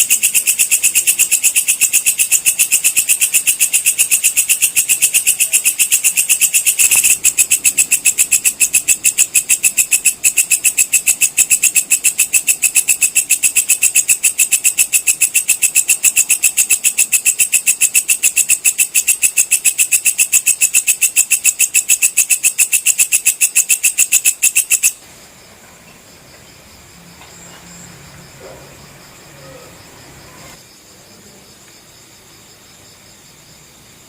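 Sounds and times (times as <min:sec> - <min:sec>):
insect ringing chirps: 0:00.0 - 0:25.0
faint background noise: 0:00.0 - 0:34.0.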